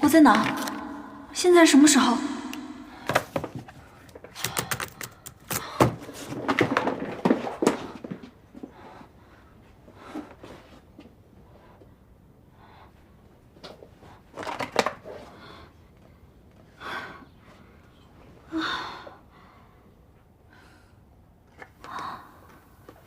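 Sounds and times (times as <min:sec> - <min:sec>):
woman breathing hard and sighing: 0:18.4 - 0:21.2.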